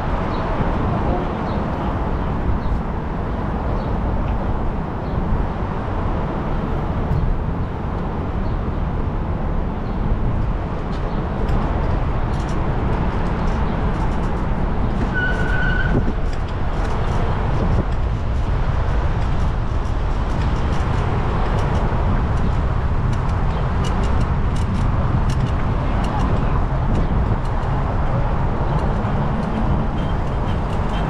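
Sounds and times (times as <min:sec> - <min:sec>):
wind buffeting microphone: 0:00.0 - 0:31.0
bicycle rolling noise: 0:09.0 - 0:31.0.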